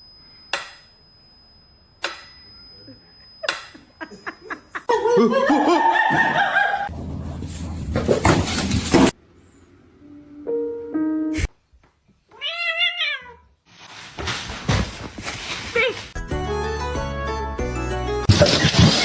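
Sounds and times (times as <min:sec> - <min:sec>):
person laughing: 0:03.4 - 0:06.9.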